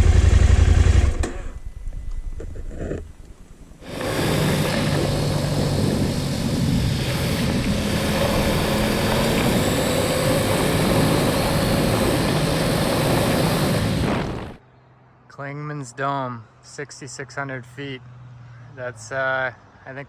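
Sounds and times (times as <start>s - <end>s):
motorcycle engine running: 0.0s - 3.1s, 3.8s - 14.6s
wind rush on microphone: 3.5s - 14.6s.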